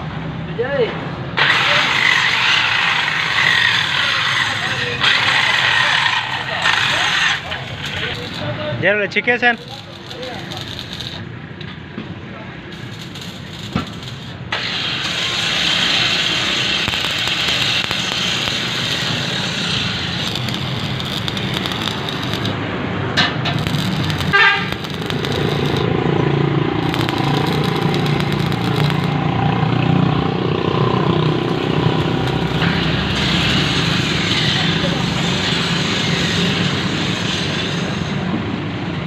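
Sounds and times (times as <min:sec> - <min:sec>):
vehicle engine running: 0:15.9 - 0:34.3
sharp click: 0:16.8 - 0:19.2, 0:20.2 - 0:22.6
horn toot: 0:24.3 - 0:24.8.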